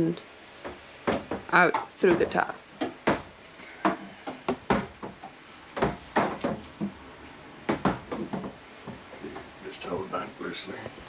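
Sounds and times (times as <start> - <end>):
hose knocking against wooden boards: 0.6 - 7.0, 7.7 - 9.5.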